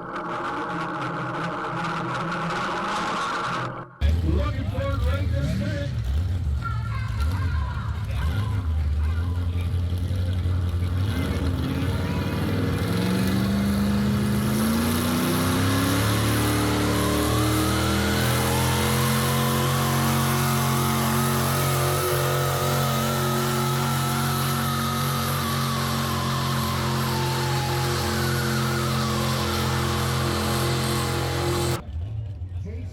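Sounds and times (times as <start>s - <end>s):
vehicle engine revving: 4.0s - 32.6s
high whine: 13.2s - 31.8s.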